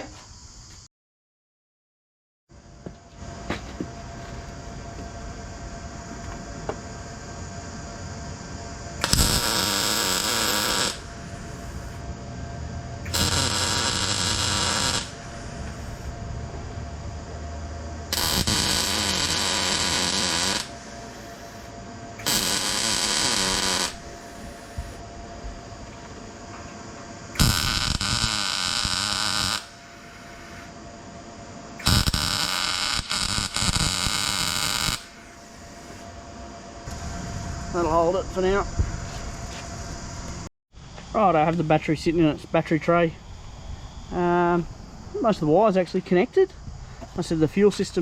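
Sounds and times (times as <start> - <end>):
steady electrical hum: 2.6 - 48.0
crackling welding bursts: 9.0 - 12.0, 13.0 - 16.1, 18.0 - 25.0, 27.3 - 30.7, 31.8 - 36.1.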